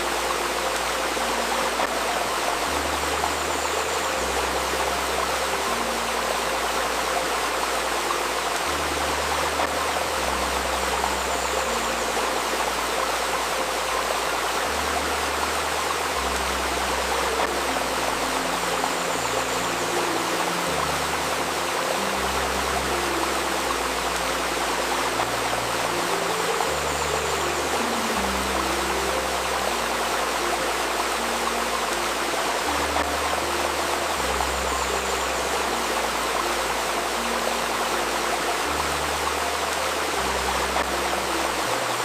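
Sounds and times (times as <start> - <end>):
river babbling: 0.0 - 42.0
soft sustained ambient music: 0.0 - 42.0.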